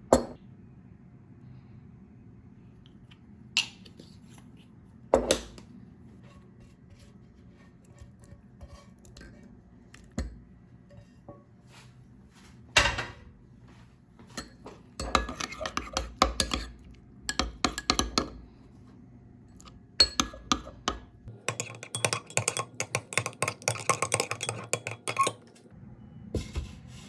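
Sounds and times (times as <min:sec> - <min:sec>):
utensils and dishes knocking: 0:17.3 - 0:18.4, 0:20.0 - 0:25.4.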